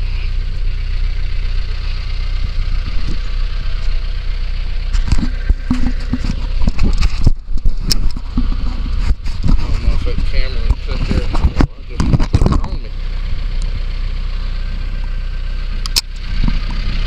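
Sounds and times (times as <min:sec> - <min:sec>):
vehicle engine idling: 0:00.0 - 0:17.0
knocks and clatter: 0:04.9 - 0:12.9.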